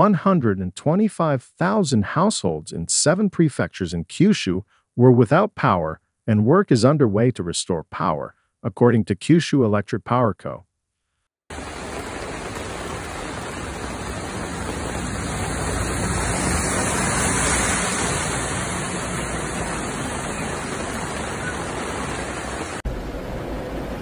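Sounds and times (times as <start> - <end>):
heavy rain hiss: 11.5 - 24.0
rushing floodwater: 11.5 - 24.0
van driving through water: 11.5 - 24.0.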